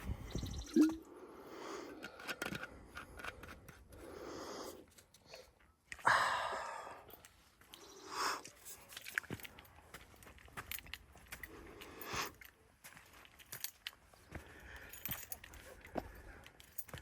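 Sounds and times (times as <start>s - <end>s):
person breathing heavily: 0.0s - 8.6s, 11.3s - 12.5s, 14.3s - 16.9s
footsteps and gear clicks: 7.1s - 17.0s.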